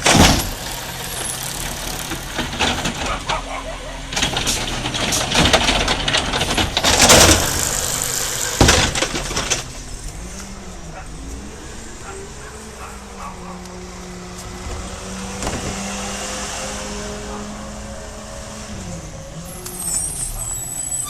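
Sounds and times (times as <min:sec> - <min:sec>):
knocks and clatters: 0:00.0 - 0:03.4, 0:04.1 - 0:11.4
garbage truck engine running: 0:00.0 - 0:15.7.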